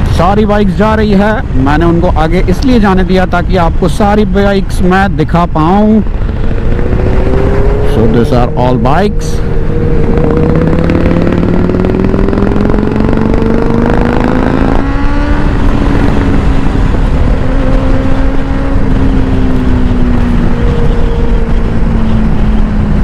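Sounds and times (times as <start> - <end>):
constant rushing noise: 0.0 - 23.0
motorcycle engine accelerating: 5.6 - 23.0.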